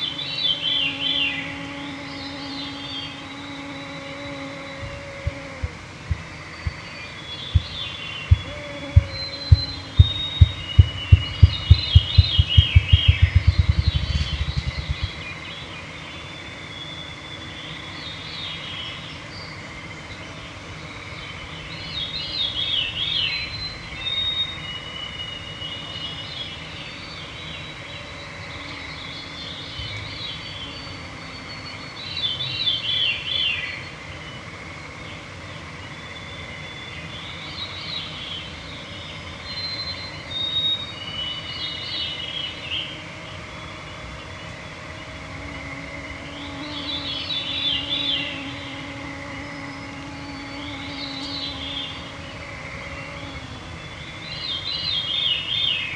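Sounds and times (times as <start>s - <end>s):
faint steady hum: 0.0s - 55.9s
songbirds singing: 0.0s - 55.9s
rapid low thumps: 5.2s - 6.8s, 7.5s - 15.4s.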